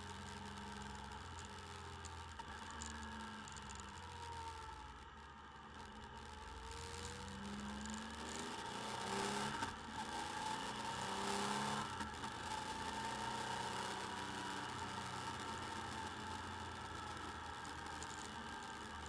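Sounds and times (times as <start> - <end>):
motorcycle engine accelerating: 6.4 - 19.0.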